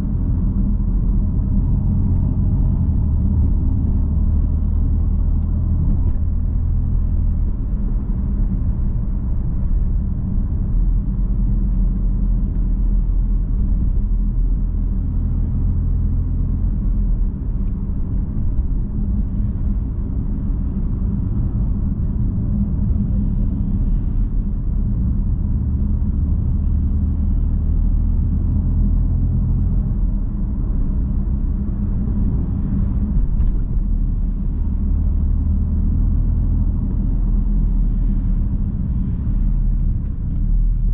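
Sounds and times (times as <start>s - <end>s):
car engine rumbling: 0.0s - 40.9s.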